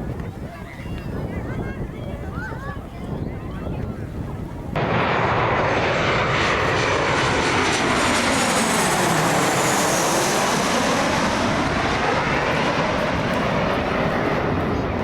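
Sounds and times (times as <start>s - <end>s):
jet airliner passing overhead: 4.5s - 15.0s.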